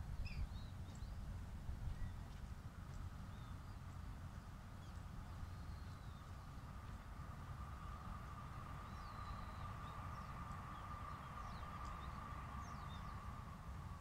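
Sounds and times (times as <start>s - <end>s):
faint steady hum: 0.0s - 14.0s
birds chirping: 8.7s - 13.6s.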